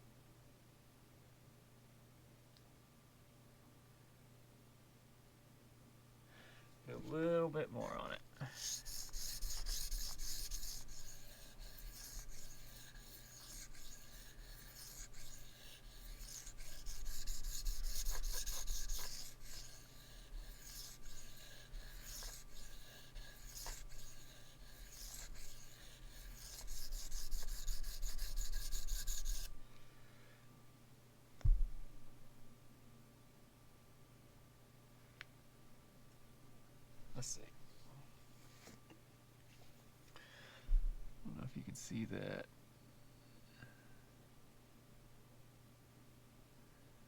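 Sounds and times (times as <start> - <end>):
knife scraping on whetstone: 8.4 - 29.5.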